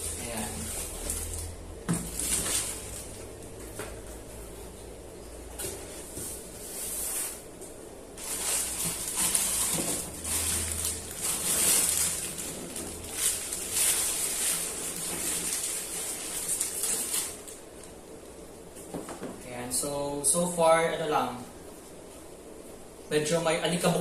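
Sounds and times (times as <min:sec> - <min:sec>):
plastic packaging crinkling: 0:00.0 - 0:03.4, 0:08.2 - 0:18.0.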